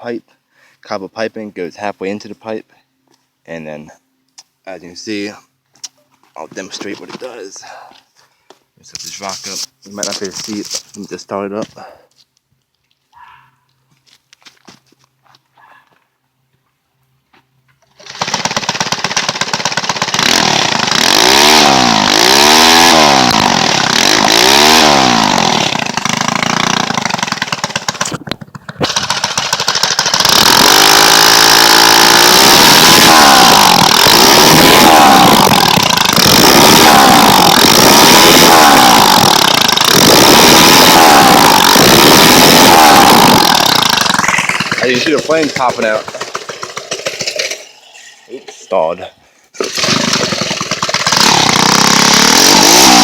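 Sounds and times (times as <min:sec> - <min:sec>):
small engine revving: 0:17.9 - 0:47.8, 0:49.6 - 0:53.0.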